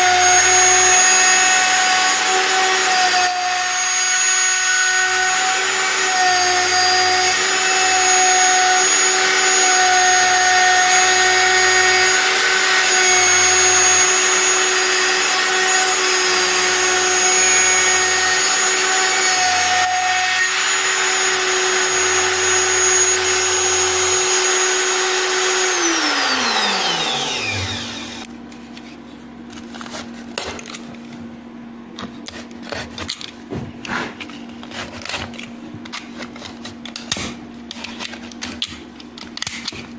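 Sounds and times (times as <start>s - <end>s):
router spindle whining: 0.0s - 28.3s.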